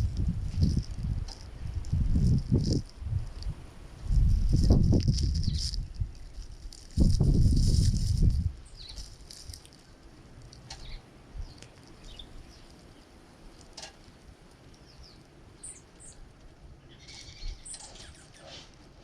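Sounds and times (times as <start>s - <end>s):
songbirds chirping: 8.1s - 19.0s.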